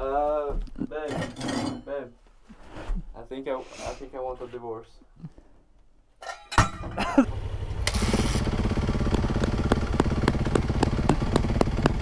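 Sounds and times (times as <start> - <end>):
motorcycle engine running: 7.3 - 12.0.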